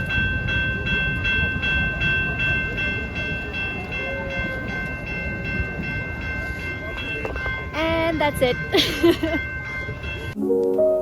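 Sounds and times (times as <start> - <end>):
train rumbling: 0.0 - 10.4
railway crossing bell ringing: 0.0 - 11.0.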